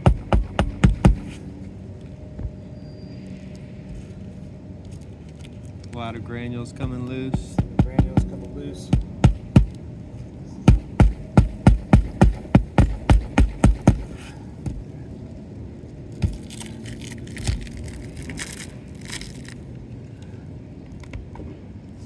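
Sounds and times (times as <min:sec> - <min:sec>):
hammer striking nails: 0:00.0 - 0:01.4, 0:07.3 - 0:09.8, 0:10.7 - 0:14.3
scratchy scraping: 0:00.0 - 0:01.5.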